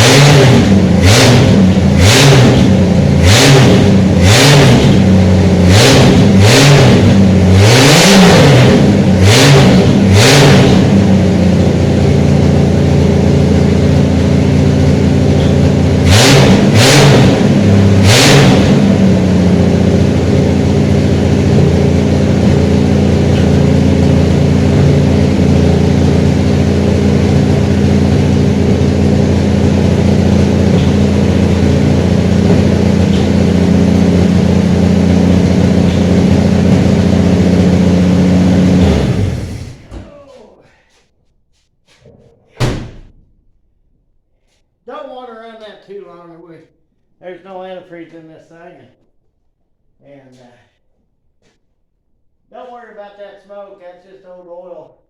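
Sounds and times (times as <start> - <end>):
engine revving and idling: 0.0 - 39.9.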